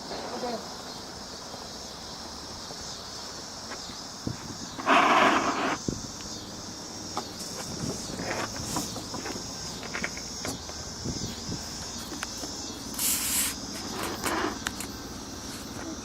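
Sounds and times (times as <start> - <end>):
insects droning: 0.0 - 16.0
burst of hiss: 4.2 - 6.2, 11.0 - 16.0
scattered clicks: 14.0 - 15.0.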